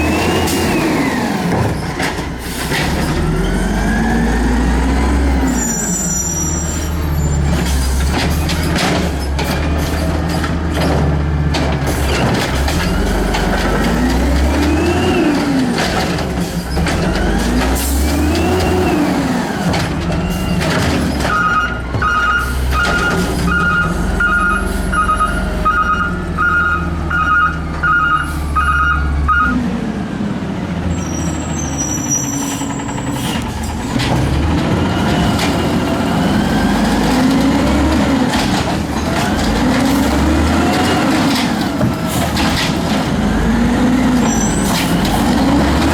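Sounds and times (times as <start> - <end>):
garbage truck diesel engine revving: 0.0 - 45.9
reversing alarm beeping: 21.3 - 29.6.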